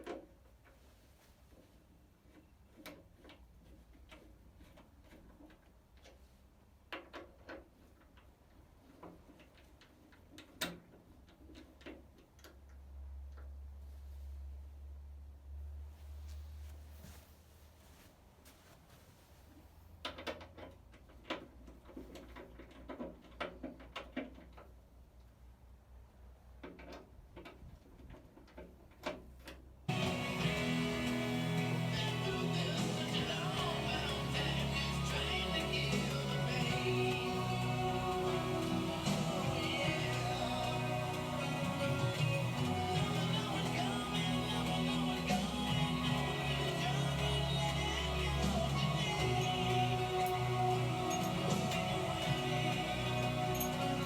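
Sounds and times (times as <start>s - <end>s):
guitar music: 29.9s - 54.0s.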